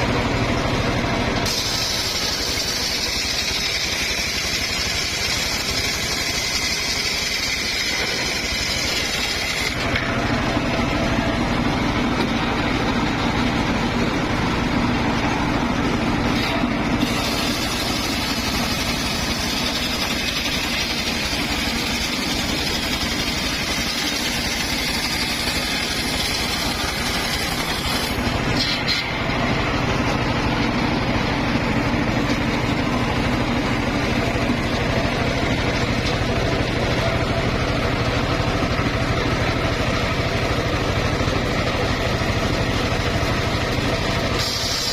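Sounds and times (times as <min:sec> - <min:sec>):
circular saw cutting wood: 0:01.4 - 0:13.1, 0:16.1 - 0:31.0, 0:42.5 - 0:44.9.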